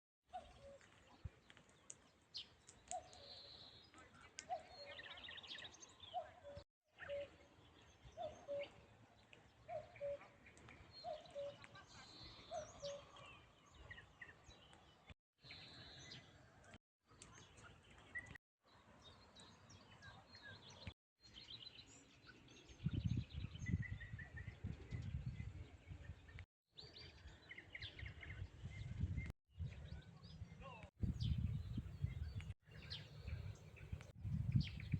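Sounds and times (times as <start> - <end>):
small birds chirping and trilling: 0.3 - 34.9
cuckoo calling: 8.2 - 8.8, 9.7 - 10.2, 11.0 - 11.8.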